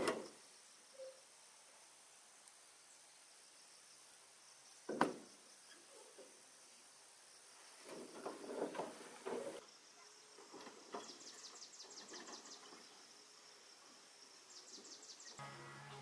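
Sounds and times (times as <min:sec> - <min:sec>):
insect chirping: 0:00.2 - 0:16.0
rustling or scraping: 0:07.6 - 0:09.6.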